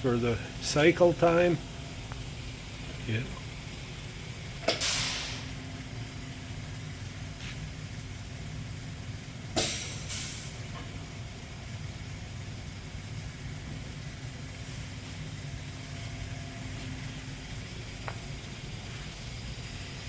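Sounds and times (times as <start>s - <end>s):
machine hum: 0.0s - 9.6s, 10.5s - 20.0s
air hissing: 4.6s - 5.6s, 9.5s - 11.2s.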